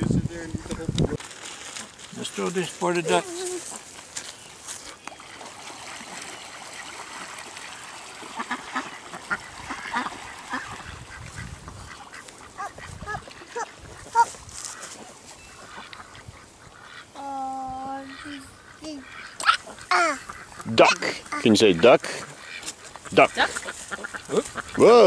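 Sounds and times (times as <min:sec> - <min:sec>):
ducks calling: 0:00.0 - 0:25.0.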